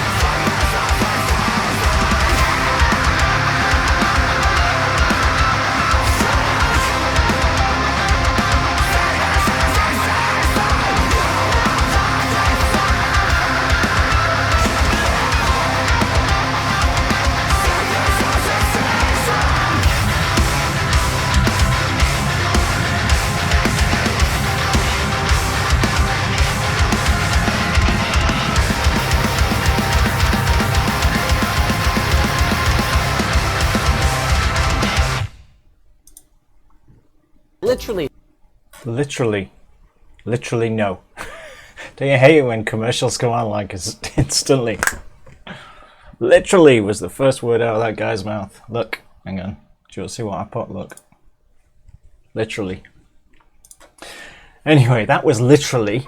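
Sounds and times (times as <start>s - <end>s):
rapid kick drum strokes: 0.0s - 35.3s
death metal song: 0.0s - 35.4s
distorted guitars: 0.0s - 35.5s.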